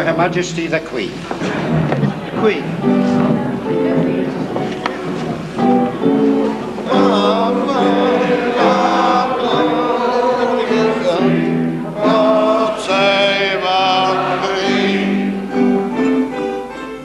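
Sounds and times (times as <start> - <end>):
group of voices singing: 6.8 - 15.9.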